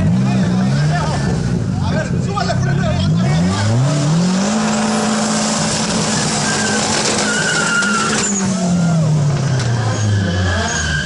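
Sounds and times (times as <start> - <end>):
car engine revving high: 0.0 - 1.8, 2.8 - 11.0
tyres squealing: 6.0 - 11.0.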